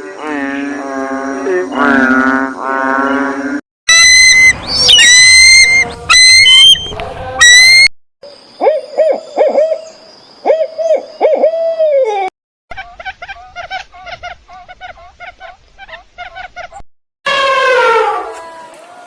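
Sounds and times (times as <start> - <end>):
high whistled animal calls: 3.9 - 7.9.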